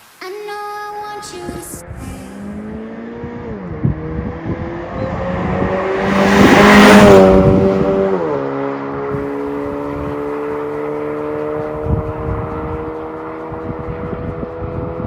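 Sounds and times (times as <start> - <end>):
car engine exhaust note: 1.6 - 15.0.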